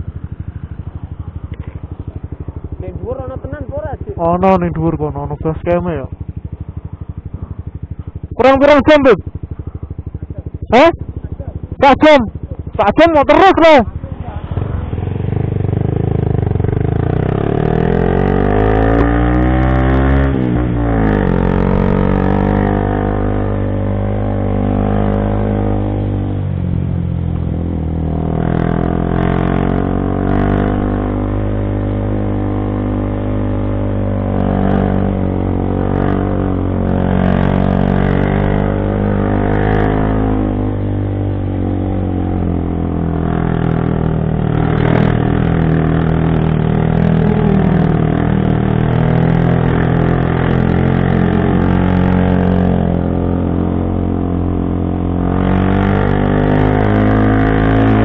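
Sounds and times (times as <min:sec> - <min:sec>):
motorcycle engine pulling under load: 0:27.8 - 0:58.0.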